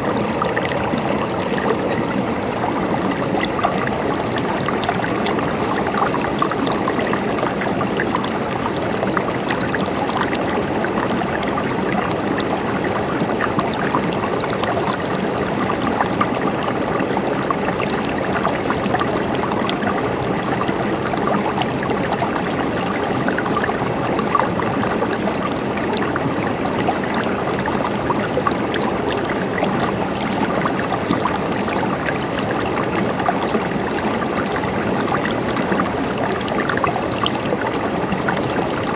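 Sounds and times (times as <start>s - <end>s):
stream trickling and splashing: 0.0s - 38.9s.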